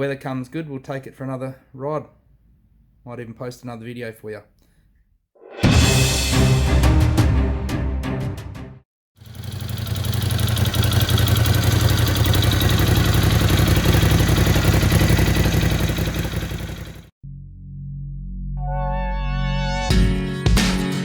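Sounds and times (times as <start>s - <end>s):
motorcycle engine idling: 9.2s - 17.1s.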